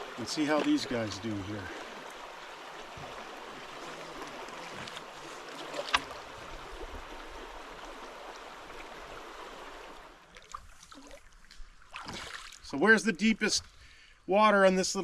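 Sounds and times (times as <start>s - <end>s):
stream water rushing: 0.0s - 11.1s.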